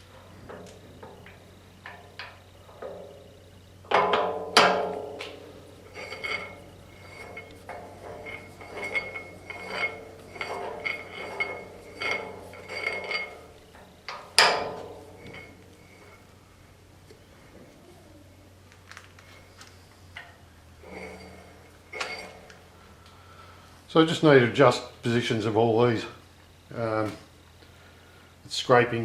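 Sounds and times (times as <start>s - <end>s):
metal parts knocking and clinking: 0.4s - 16.3s.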